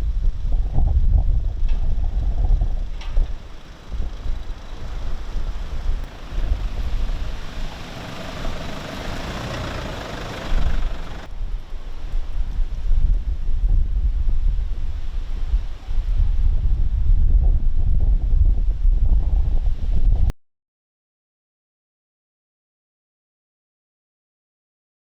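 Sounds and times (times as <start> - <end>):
wind buffeting microphone: 0.0 - 20.3
hiss: 3.2 - 11.3.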